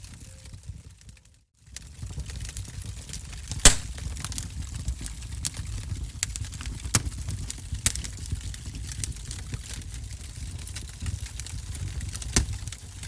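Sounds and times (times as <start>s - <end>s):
wood fire crackling: 3.6s - 4.2s
sharp loud pop of fire: 3.7s - 4.0s.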